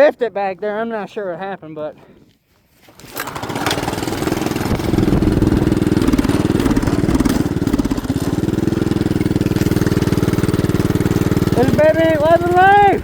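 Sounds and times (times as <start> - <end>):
small engine starting and running: 2.9 - 13.0.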